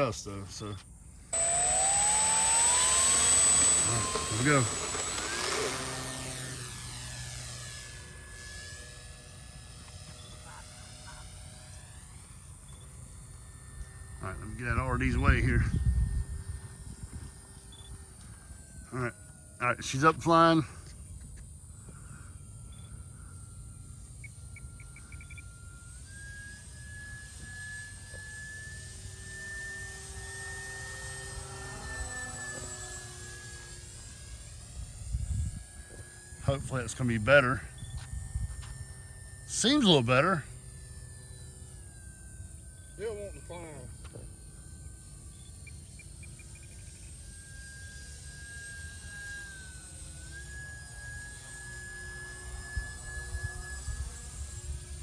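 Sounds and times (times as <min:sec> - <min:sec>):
model plane motor whining: 0:01.3 - 0:55.0
wind rumbling on microphone: 0:14.6 - 0:17.6, 0:35.0 - 0:35.7.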